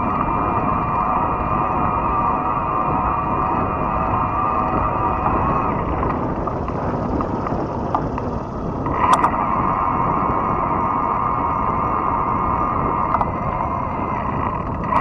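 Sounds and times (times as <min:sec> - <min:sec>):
electric motor whine: 0:00.0 - 0:15.0
wind and tyre noise: 0:00.0 - 0:15.0
sharp clicks: 0:05.2 - 0:09.4.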